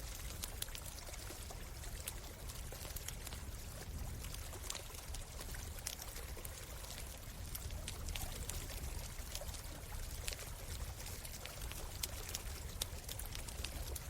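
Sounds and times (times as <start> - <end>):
campfire crackling and popping: 0.0 - 14.0
flowing stream: 0.0 - 14.0.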